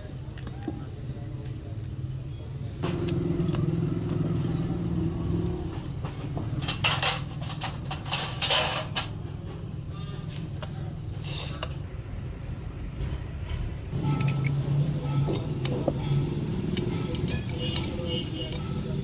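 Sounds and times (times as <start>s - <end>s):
vehicle engine running: 2.8s - 8.2s, 11.6s - 19.0s.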